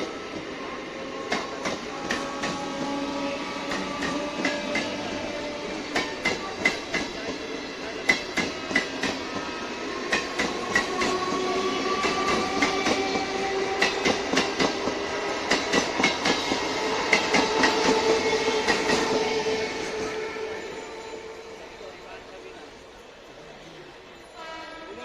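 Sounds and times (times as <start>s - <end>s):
electric train whine: 0.0s - 25.0s
train wheels clicking over rail joints: 12.0s - 19.3s.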